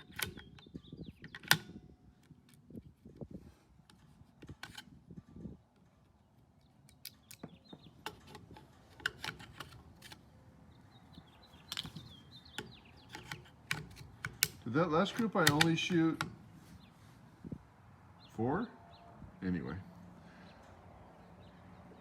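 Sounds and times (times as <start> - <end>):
light clicks and handling noises: 0.0 - 17.0.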